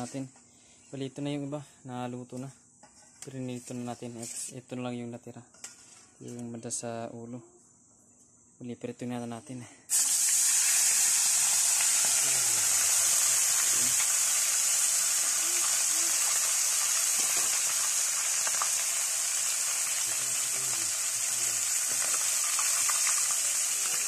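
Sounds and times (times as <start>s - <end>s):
fish frying in hot oil: 9.9s - 24.0s.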